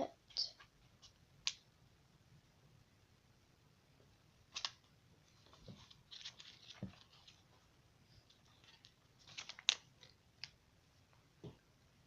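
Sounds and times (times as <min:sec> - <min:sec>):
paper rustling: 0:04.5 - 0:07.6, 0:08.2 - 0:10.5.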